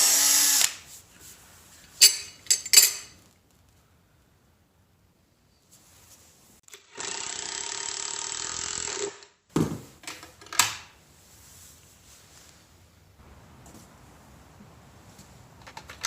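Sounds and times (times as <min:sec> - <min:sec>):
power tool running: 0:00.0 - 0:00.7, 0:06.7 - 0:09.2.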